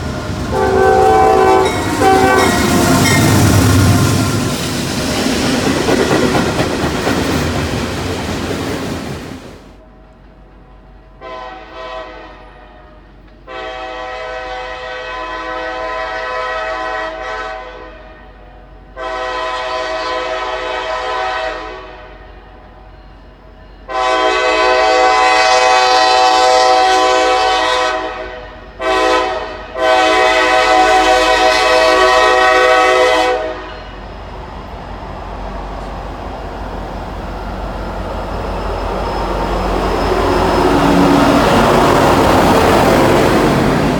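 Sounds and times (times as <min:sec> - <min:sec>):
train rumble: 0:00.0 - 0:15.2, 0:18.1 - 0:43.9
locomotive air horn blasts: 0:00.4 - 0:04.6, 0:11.2 - 0:22.4, 0:23.9 - 0:34.0.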